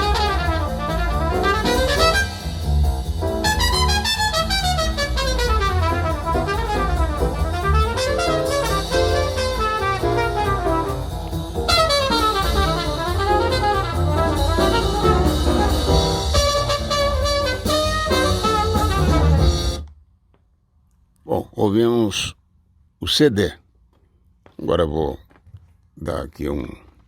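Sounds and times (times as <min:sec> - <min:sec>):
jazz recording with horns and drums: 0:00.0 - 0:19.9.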